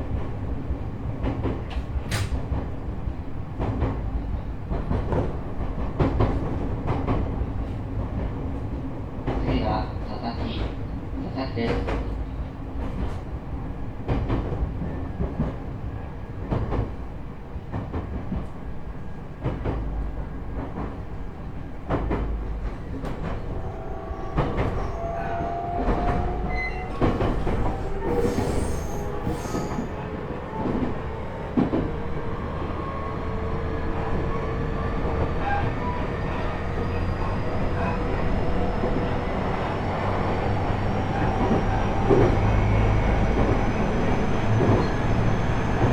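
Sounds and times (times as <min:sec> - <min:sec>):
electric train motor whine: 0:23.2 - 0:29.4.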